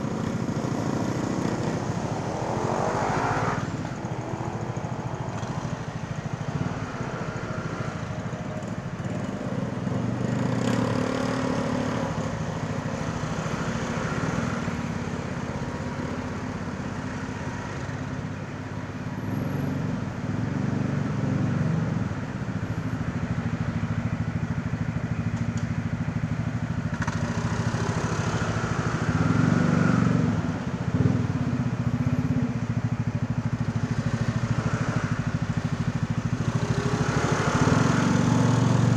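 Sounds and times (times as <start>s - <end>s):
wind and road noise: 0.0s - 38.9s
scooter engine: 23.3s - 38.9s.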